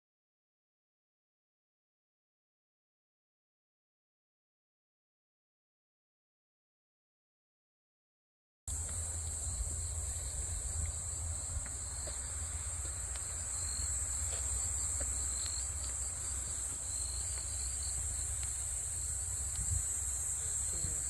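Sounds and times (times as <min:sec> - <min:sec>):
high-pitched insect chorus: 0:08.7 - 0:21.0.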